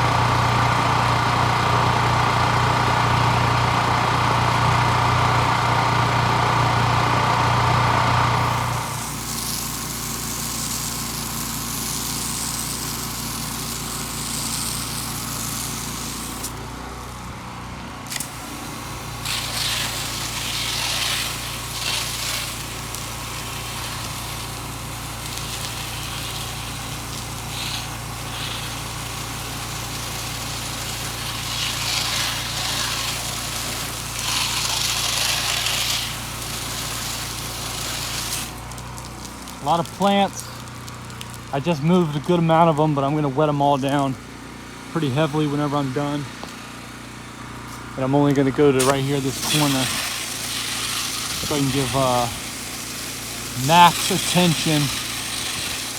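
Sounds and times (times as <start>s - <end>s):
pressure washer engine running: 0.0s - 55.9s
water spray hissing: 6.2s - 16.8s, 18.1s - 41.6s, 48.8s - 55.9s.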